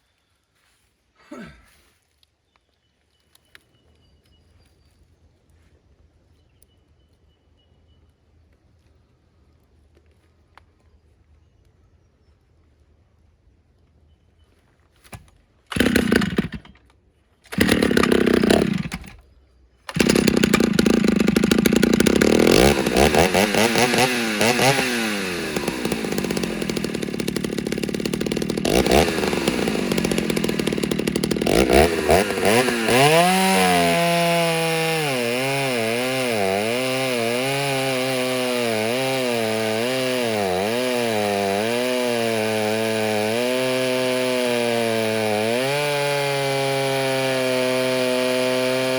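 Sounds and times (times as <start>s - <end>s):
chainsaw engine running: 15.7s - 16.8s, 17.5s - 19.2s, 19.9s - 48.9s.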